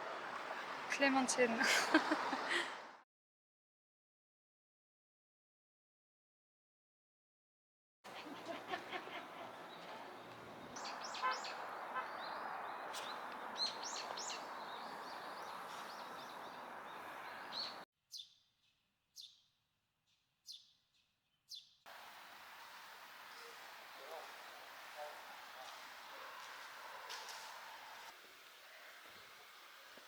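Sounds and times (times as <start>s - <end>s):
small birds chirping: 8.1s - 18.4s, 20.4s - 30.0s
steady background hiss: 21.9s - 30.0s.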